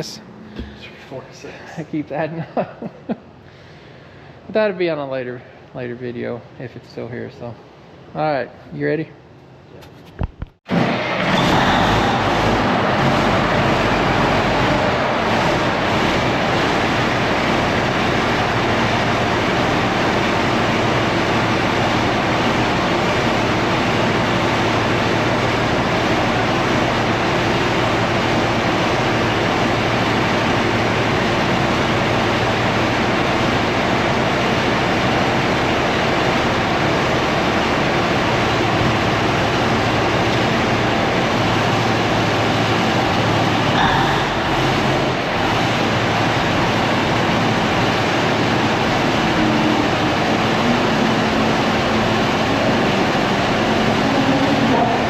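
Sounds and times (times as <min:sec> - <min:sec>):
bulldozer diesel engine running: 0:00.0 - 0:02.2, 0:10.7 - 0:55.0
steel tracks moving: 0:10.7 - 0:55.0.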